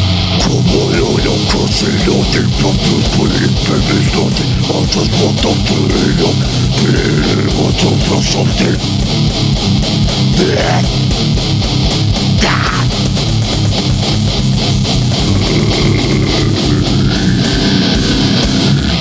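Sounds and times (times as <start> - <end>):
bass guitar: 0.0 - 19.0
distorted electric guitar riff: 0.0 - 19.0
fast drum hits: 4.7 - 18.8.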